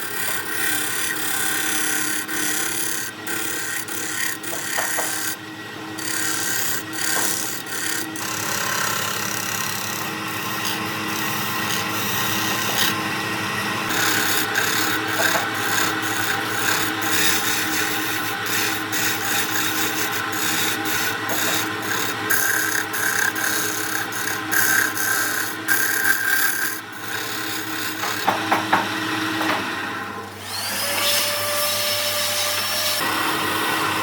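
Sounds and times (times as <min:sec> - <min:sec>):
tool scraping spinning wood: 0:00.0 - 0:31.3
wood lathe motor hum: 0:00.0 - 0:34.0.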